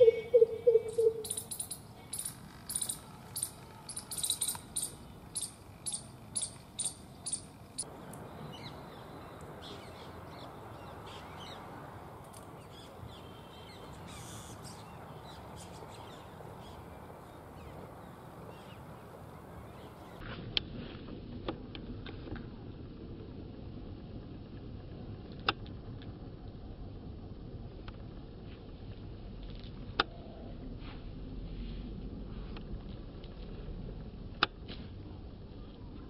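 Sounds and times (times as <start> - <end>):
high-pitched bird calls: 0.0 - 11.7, 12.6 - 17.8
outdoor background: 0.0 - 36.0.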